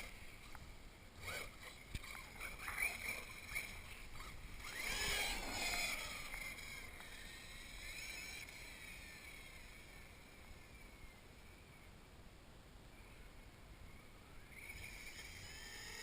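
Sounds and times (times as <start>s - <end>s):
toy truck motor whining: 1.2s - 11.2s, 14.4s - 16.0s.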